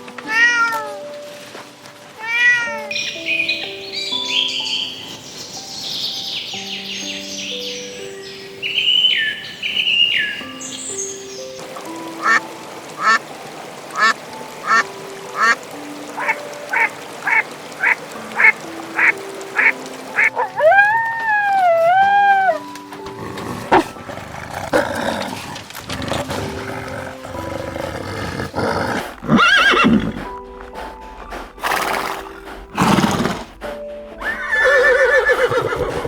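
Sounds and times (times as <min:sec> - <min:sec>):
light background music: 0:00.0 - 0:36.0
ducks quacking: 0:12.2 - 0:12.4, 0:13.0 - 0:13.2, 0:13.9 - 0:15.6, 0:16.2 - 0:20.8.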